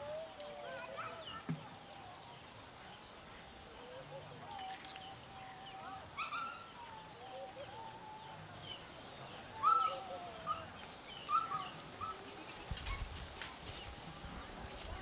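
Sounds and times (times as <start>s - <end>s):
birds whistling and chirping: 9.6s - 13.9s.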